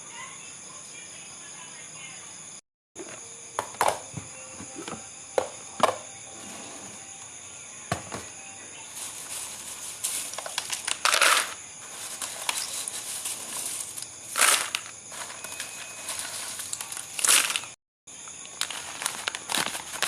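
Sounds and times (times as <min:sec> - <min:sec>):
crickets chirring: 0:00.0 - 0:20.0
rustling and crinkling: 0:08.8 - 0:20.0.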